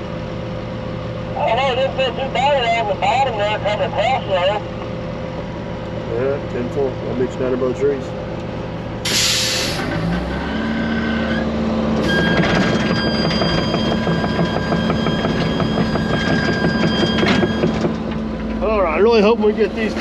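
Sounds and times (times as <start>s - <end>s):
heavy diesel engine running: 0.0s - 20.0s
short hiss: 9.1s - 9.9s.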